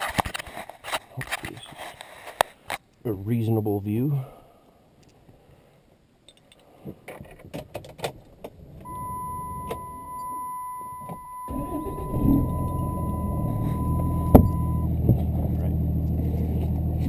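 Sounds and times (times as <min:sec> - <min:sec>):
diesel engine starting and idling: 0:08.8 - 0:17.0
electronic chime: 0:08.9 - 0:14.9.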